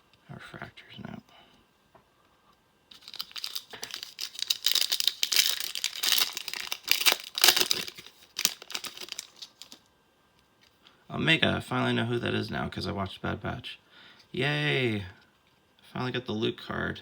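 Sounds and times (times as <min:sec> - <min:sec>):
wrapper tearing and crinkling: 0:02.9 - 0:09.9.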